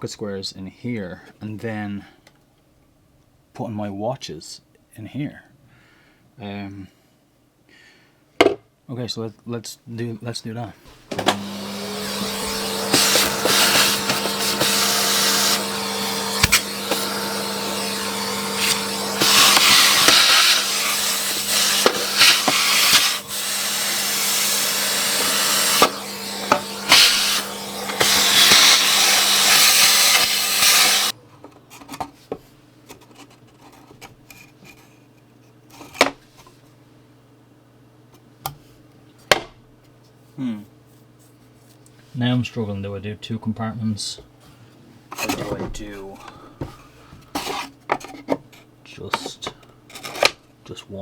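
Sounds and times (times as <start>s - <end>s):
vacuum cleaner running: 10.9s - 31.2s.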